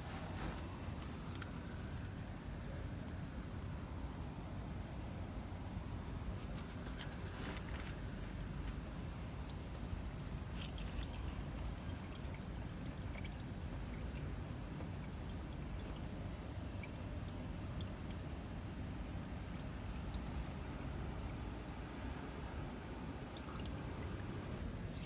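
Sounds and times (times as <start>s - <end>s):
oil trickling and dripping: 0.0s - 5.1s, 6.1s - 25.0s.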